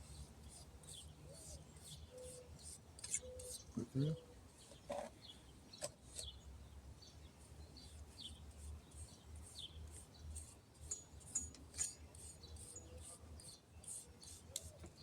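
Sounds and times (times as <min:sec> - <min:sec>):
bird chirps: 0:00.5 - 0:04.8.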